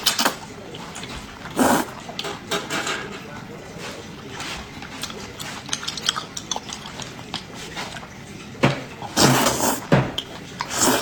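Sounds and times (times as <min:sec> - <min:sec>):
wet chewing clicks: 0:04.2 - 0:11.0.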